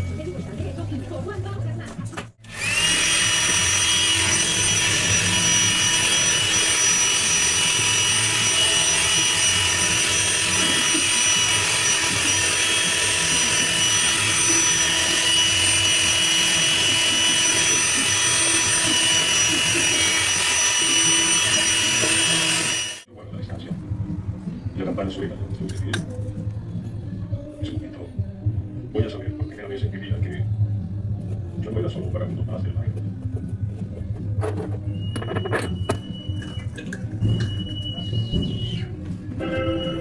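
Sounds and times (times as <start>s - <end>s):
power tool motor whining: 2.4s - 23.1s.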